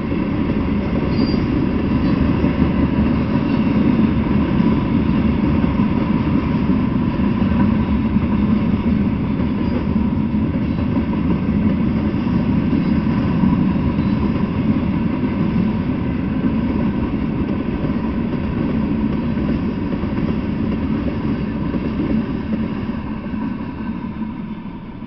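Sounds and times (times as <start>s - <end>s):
freight train rolling past: 0.0s - 25.0s.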